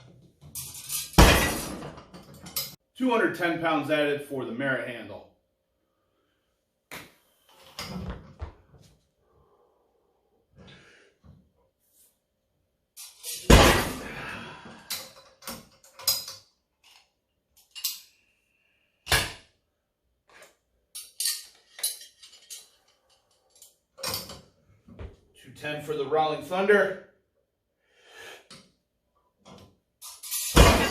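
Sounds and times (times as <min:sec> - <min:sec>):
loud ringing metal crash: 0:30.6 - 0:30.9.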